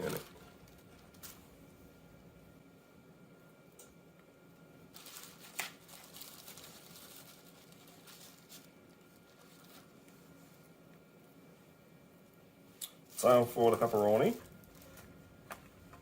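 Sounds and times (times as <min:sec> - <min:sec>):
crinkling and rustling of food: 0:00.0 - 0:01.6, 0:04.9 - 0:10.8, 0:12.8 - 0:16.0.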